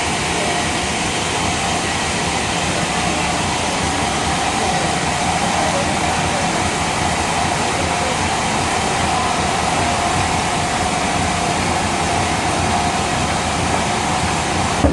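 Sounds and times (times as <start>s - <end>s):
sawmill machinery whining: 0.0s - 14.9s.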